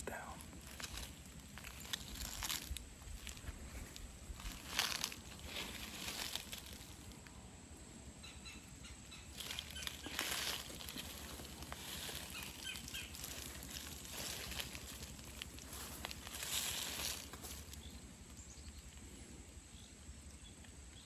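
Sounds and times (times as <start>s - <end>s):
grass and clothing swishing: 0.6s - 7.0s, 9.4s - 17.8s.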